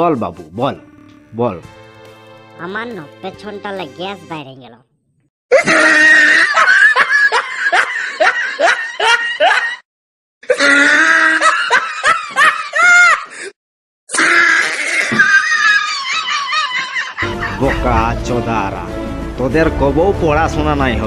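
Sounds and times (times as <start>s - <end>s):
man laughing heartily: 5.5s - 9.8s, 11.2s - 13.4s, 15.5s - 18.2s.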